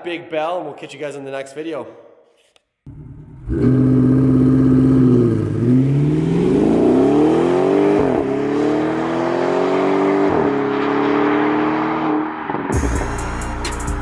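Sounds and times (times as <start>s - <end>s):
car engine accelerating hard: 2.9s - 12.8s.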